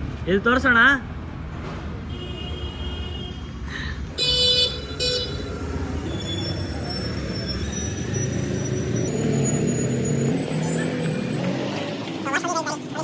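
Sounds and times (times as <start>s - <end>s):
road traffic rumble: 0.0s - 13.0s
vehicle horn tooting: 4.2s - 6.5s.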